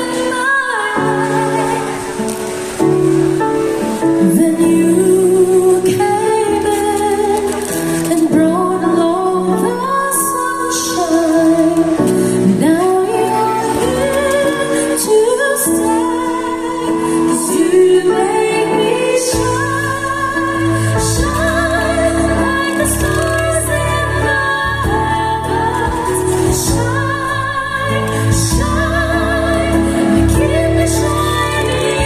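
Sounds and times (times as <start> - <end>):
woman singing: 0.0 - 32.0.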